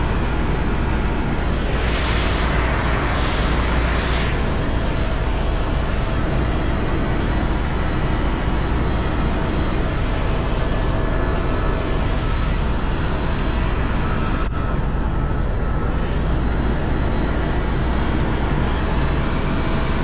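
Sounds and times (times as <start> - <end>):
faint steady whine: 0.0 - 20.0
helicopter rotor and engine drone: 0.0 - 20.0.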